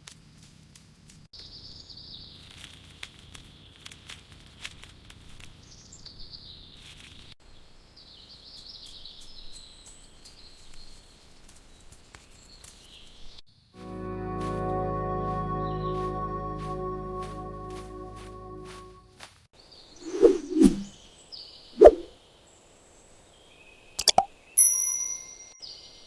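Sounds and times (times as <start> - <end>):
small sharp ticks and rustles: 0.0 - 1.3, 2.3 - 6.2, 6.8 - 7.4, 8.2 - 13.4.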